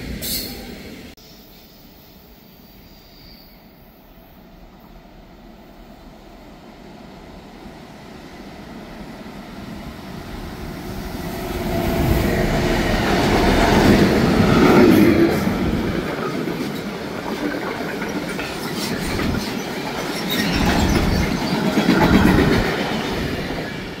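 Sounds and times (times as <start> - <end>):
freight train rumble: 3.7 - 24.0
wheels clattering over rail joints: 14.8 - 23.7.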